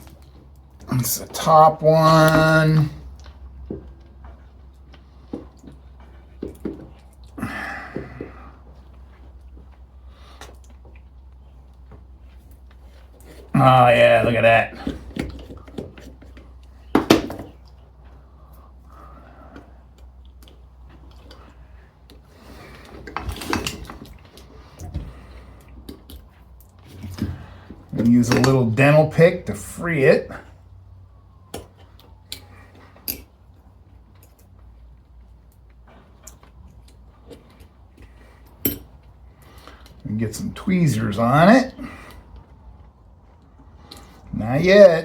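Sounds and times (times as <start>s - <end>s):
steady low hum: 0.0s - 45.0s
metal tools clinking and scraping: 38.4s - 39.1s.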